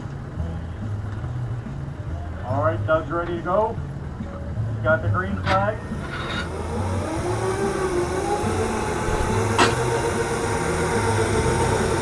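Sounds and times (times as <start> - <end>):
electric motor whining: 5.7 - 12.0.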